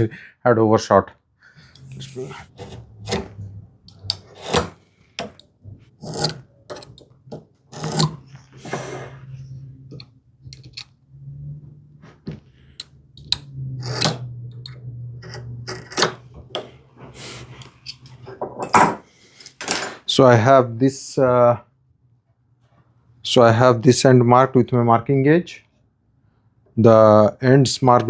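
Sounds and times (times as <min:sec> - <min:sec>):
tool scraping on wood: 0:01.8 - 0:10.9, 0:12.0 - 0:18.3.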